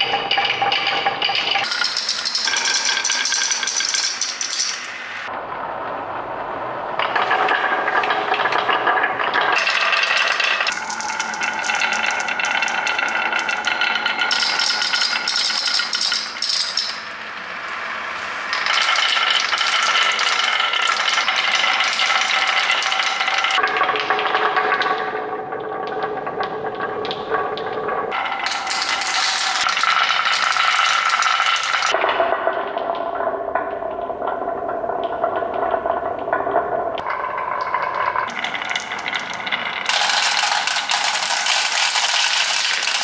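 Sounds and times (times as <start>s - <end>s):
marbles rattling down marble run: 0.0s - 5.3s, 7.6s - 17.2s, 18.5s - 23.7s, 28.1s - 32.0s, 37.0s - 43.0s.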